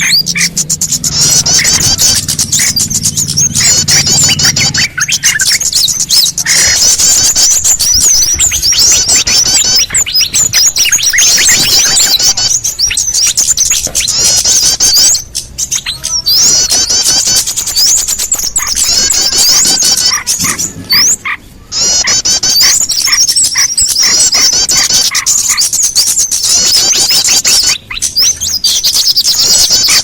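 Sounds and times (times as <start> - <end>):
songbirds chirping and twittering: 0.0 - 30.0.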